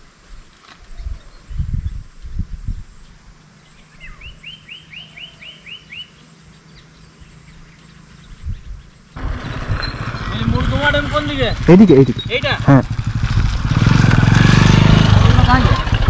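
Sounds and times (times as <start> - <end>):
faint wind rumble: 0.0 - 16.0
bird calling rising notes: 3.6 - 7.0, 11.4 - 12.9.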